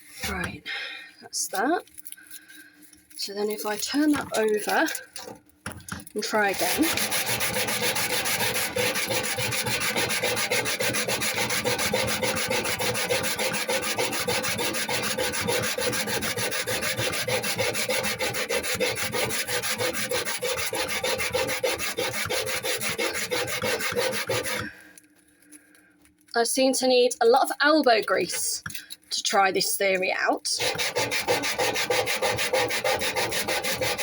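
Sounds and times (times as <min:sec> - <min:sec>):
paper towel rubbing metal: 0:03.2 - 0:05.4, 0:06.0 - 0:24.8, 0:27.3 - 0:34.0.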